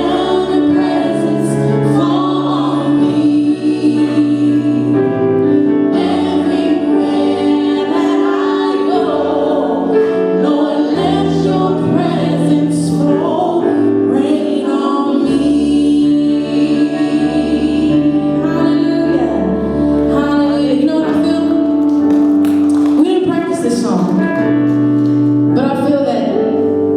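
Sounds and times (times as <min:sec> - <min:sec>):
group singing worship song: 0:00.0 - 0:21.4
held chords: 0:00.0 - 0:26.9.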